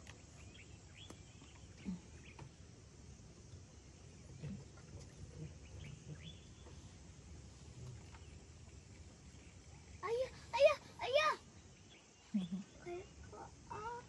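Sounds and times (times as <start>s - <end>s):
small birds chirping: 0.0s - 2.6s, 5.3s - 7.1s, 7.8s - 14.0s.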